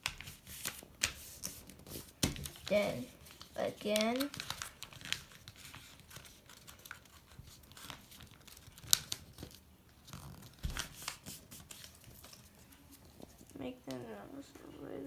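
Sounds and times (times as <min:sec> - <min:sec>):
sharp paper crackle: 0:00.0 - 0:12.6
paper rustling and crinkling: 0:00.0 - 0:14.0.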